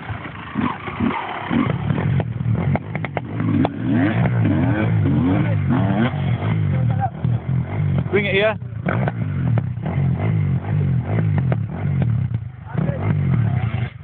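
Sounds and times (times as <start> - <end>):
motocross bike engines revving: 0.0 - 14.0
sharp clacks: 1.0 - 4.5.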